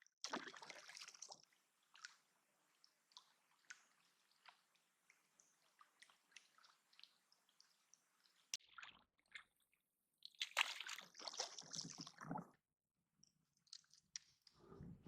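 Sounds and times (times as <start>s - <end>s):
water sloshing: 10.4s - 12.4s.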